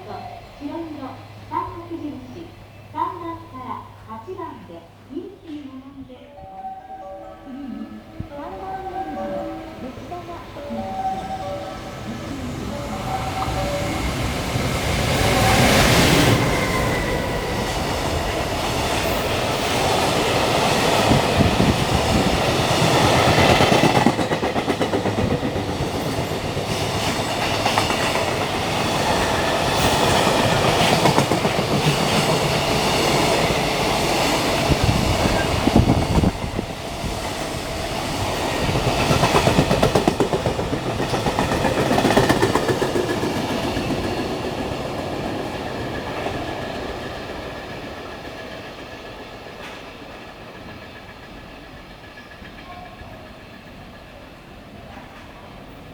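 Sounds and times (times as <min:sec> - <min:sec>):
freight train passing: 0:00.0 - 0:55.9
wheels clacking over rail joints: 0:18.1 - 0:52.9.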